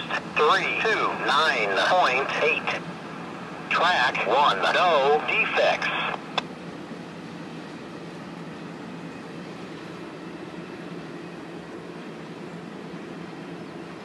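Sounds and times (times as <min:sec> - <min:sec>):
distant diesel train drone: 0:00.0 - 0:14.0.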